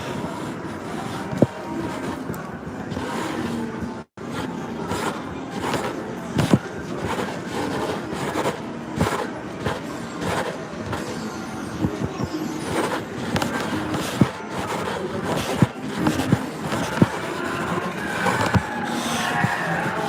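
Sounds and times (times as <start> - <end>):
crowd din: 0.0 - 20.0
machine noise: 4.2 - 20.0.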